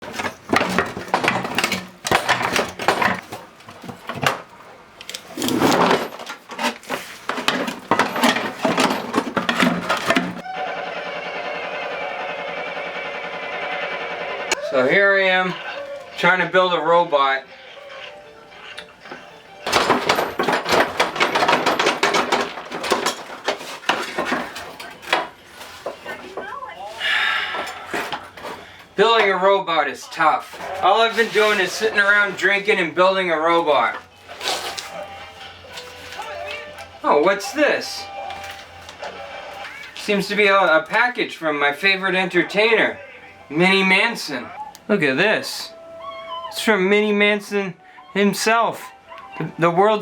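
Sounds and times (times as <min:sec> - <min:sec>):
scraping rustle: 0:05.1 - 0:10.4, 0:17.9 - 0:26.5, 0:30.4 - 0:33.1, 0:33.7 - 0:36.7
small hard objects clattering: 0:05.2 - 0:10.4, 0:19.6 - 0:26.4.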